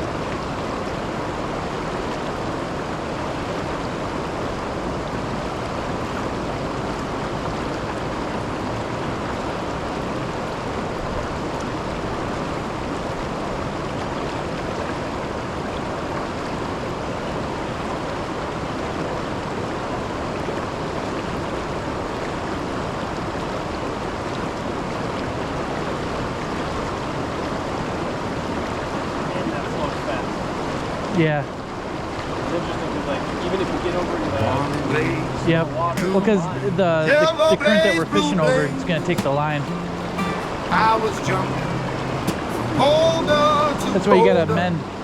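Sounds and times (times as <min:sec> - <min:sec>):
waterfall rushing: 0:34.2 - 0:45.0.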